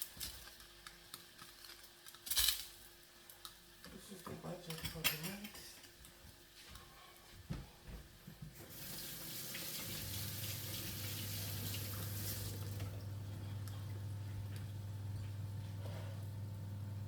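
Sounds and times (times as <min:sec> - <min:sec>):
tap running water into sink: 0:08.5 - 0:13.1
steady low hum: 0:11.9 - 0:17.0.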